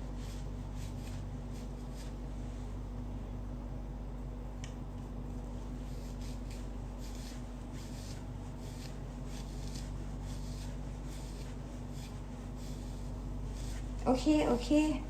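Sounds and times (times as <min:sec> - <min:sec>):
towel rubbing hair: 0:00.0 - 0:02.5, 0:05.6 - 0:14.9
steady low hum: 0:00.0 - 0:15.0.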